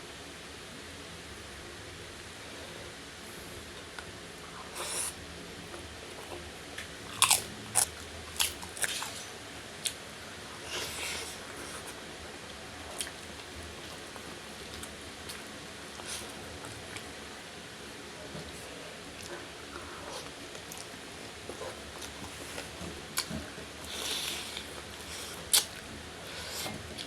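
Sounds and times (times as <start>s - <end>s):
person chewing fish: 6.1s - 9.2s, 12.9s - 17.1s, 19.2s - 25.8s.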